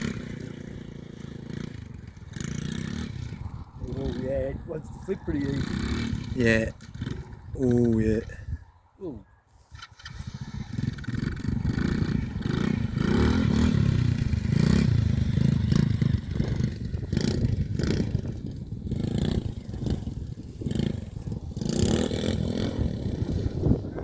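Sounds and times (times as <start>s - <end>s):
toy quad bike motor: 9.7s - 12.6s.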